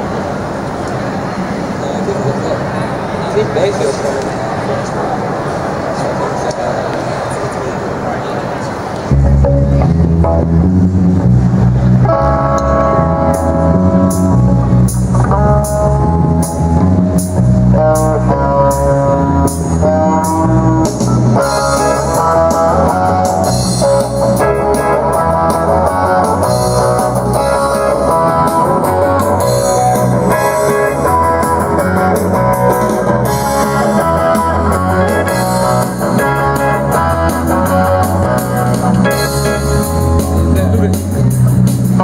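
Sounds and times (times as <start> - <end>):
live band playing instrumental: 9.2 - 42.0.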